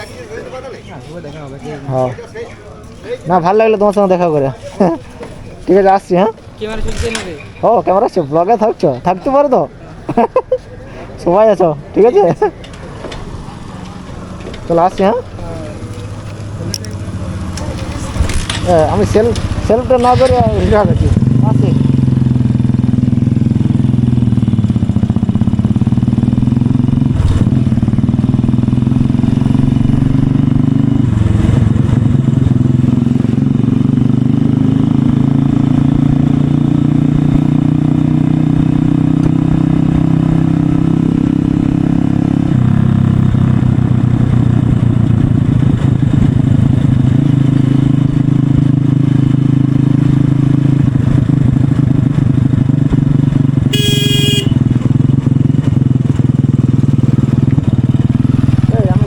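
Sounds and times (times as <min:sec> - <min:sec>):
motorcycle engine running: 0:12.3 - 0:59.0.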